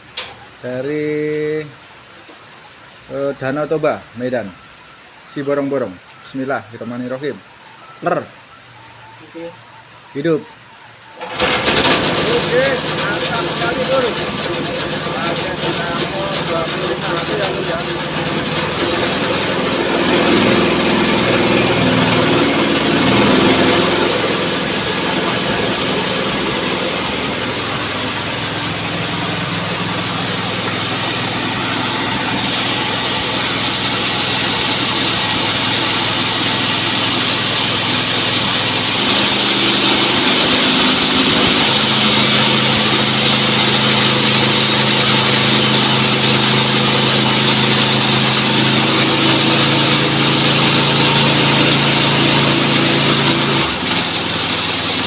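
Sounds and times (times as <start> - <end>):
band sawmill running: 11.1 - 55.0.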